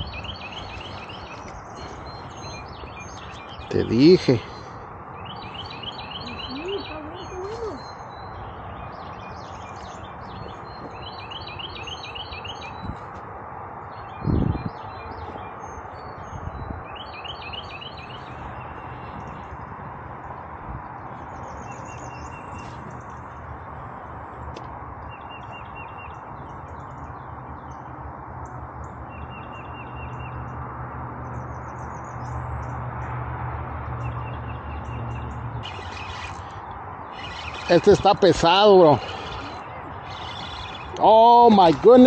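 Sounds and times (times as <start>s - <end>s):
small birds chirping: 0.0s - 13.0s, 13.9s - 19.5s, 34.0s - 42.0s.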